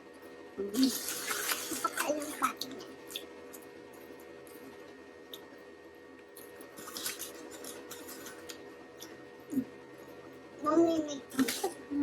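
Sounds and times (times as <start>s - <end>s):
steady electrical hum: 0.0s - 12.0s
food packaging clicks and rustling: 6.3s - 9.2s.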